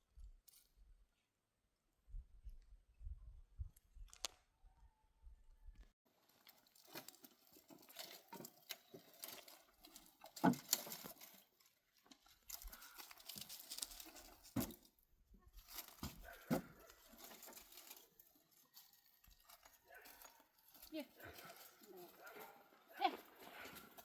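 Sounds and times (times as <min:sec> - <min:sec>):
rustling and crackling: 0:05.8 - 0:24.0.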